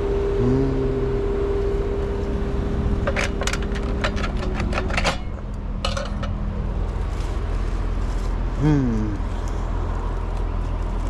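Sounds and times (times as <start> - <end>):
air conditioner electrical hum: 0.0 - 11.0
sharp metallic clicks and rattles: 3.0 - 6.6.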